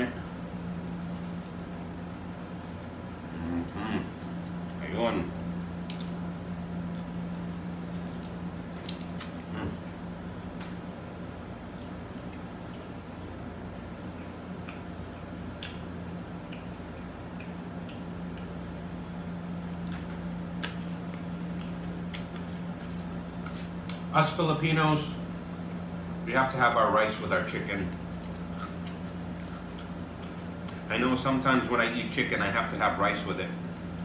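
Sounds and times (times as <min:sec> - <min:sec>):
steady low hum: 0:00.0 - 0:34.0
wet chewing: 0:11.3 - 0:24.1, 0:28.2 - 0:30.9.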